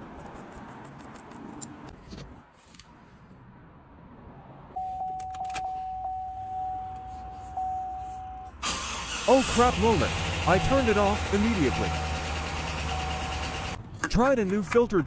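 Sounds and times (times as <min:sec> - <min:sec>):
truck engine starting and running: 0:08.5 - 0:13.9.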